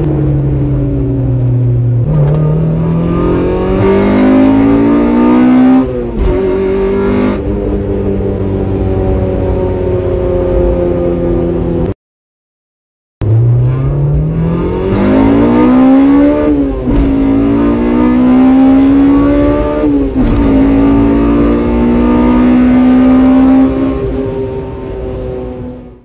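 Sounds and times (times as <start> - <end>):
car engine revving through gears: 0.0 - 11.9, 13.2 - 26.0.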